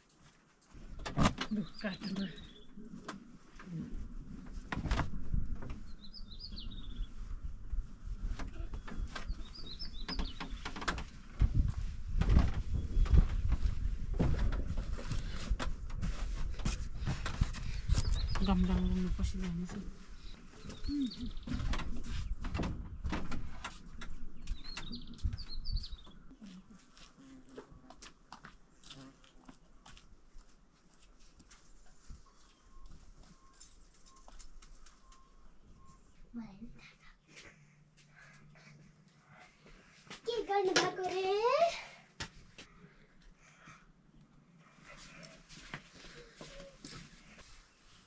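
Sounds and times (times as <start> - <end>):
small bird singing trills: 5.9 - 7.1, 8.6 - 10.6, 20.2 - 21.7.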